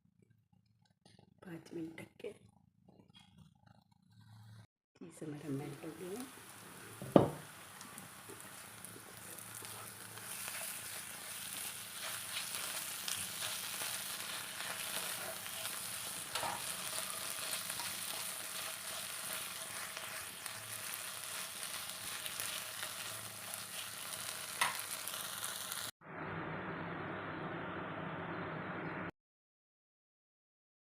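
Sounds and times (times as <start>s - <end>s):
food sizzling in a pan: 5.4s - 26.0s.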